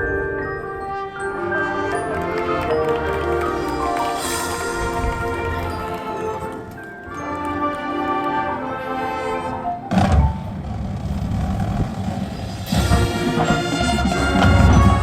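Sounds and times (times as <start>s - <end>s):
marching band playing: 0.6s - 10.6s, 12.1s - 15.0s
low brass and drums hit: 11.2s - 15.0s.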